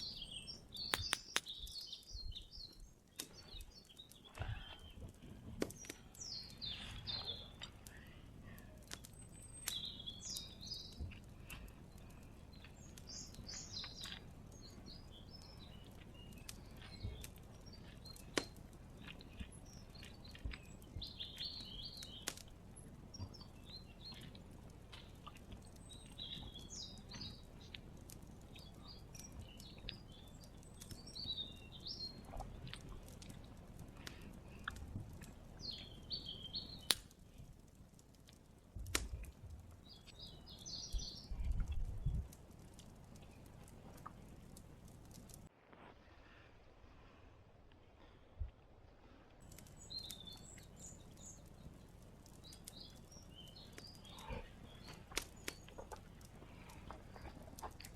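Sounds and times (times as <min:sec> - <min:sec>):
small birds chirping: 0:00.0 - 0:46.2, 0:49.4 - 0:57.9
sharp clicks: 0:00.8 - 0:02.1, 0:36.7 - 0:40.3.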